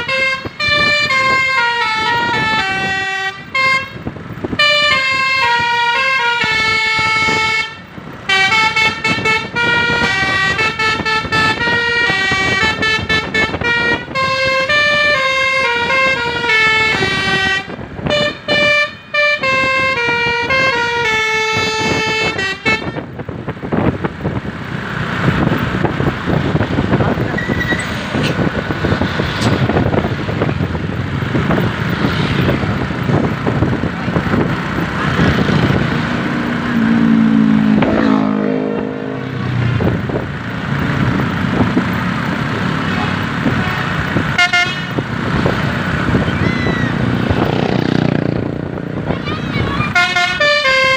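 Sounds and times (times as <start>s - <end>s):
multi-tone bus horn melody: 0.0s - 23.8s, 34.7s - 40.2s, 43.5s - 45.5s, 46.1s - 50.9s
engine and road rumble: 0.0s - 50.9s.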